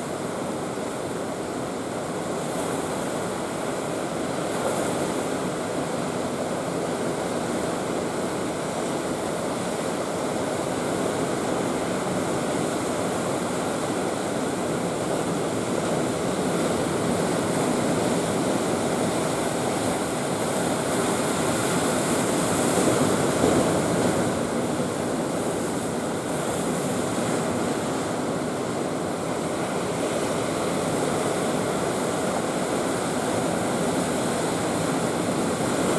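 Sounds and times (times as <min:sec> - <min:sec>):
heavy surf crashing on concrete: 0:14.9 - 0:35.9.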